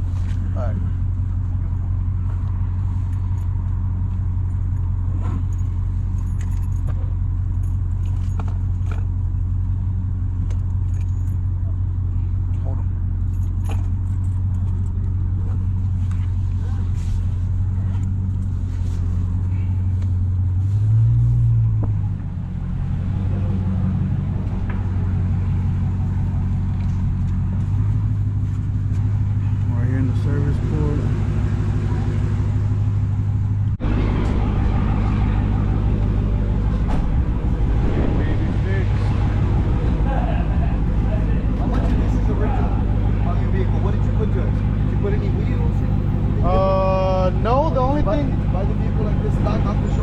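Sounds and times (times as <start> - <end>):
car engine idling: 0.0 - 50.0
light clicks or jingles: 4.7 - 9.1, 10.4 - 11.6.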